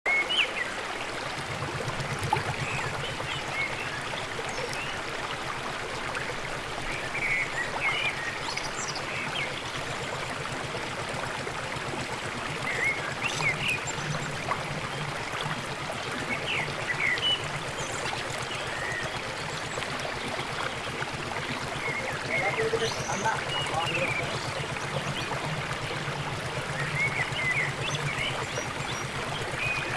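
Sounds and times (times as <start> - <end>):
water falling over a dam: 0.2 - 29.9
birds chirping: 12.4 - 29.9.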